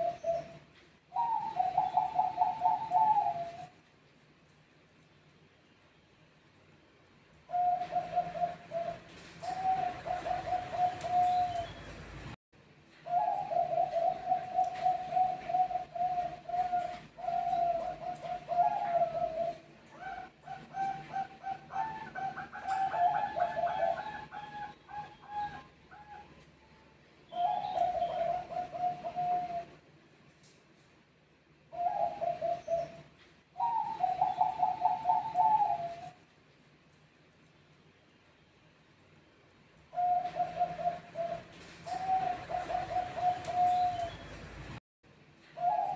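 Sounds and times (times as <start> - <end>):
dove cooing: 0.0 - 3.8, 7.5 - 11.9, 13.0 - 26.4, 27.3 - 29.8, 31.7 - 36.2, 39.9 - 44.4, 45.6 - 45.9.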